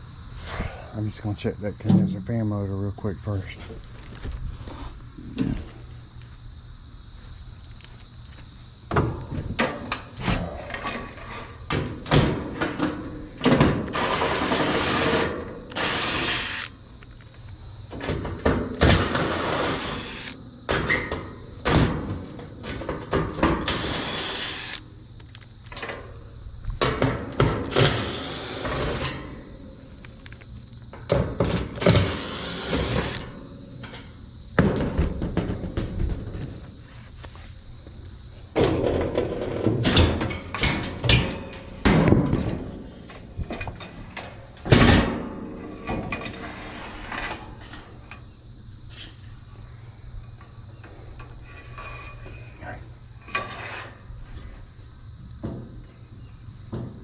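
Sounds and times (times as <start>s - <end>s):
scraping or grinding: 53.3s - 54.0s.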